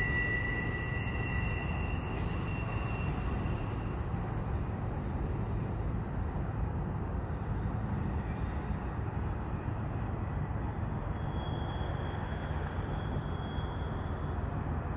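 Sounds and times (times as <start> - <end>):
faint high whine: 0.0 - 14.9
freight train wheels rumbling on rail: 0.0 - 14.9.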